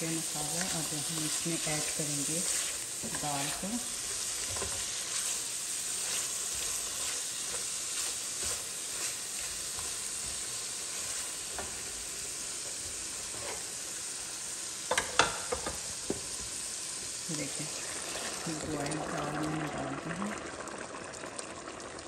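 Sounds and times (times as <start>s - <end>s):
curry sizzling in oil: 0.0s - 22.0s
wooden spatula stirring: 0.4s - 11.9s, 12.5s - 13.8s.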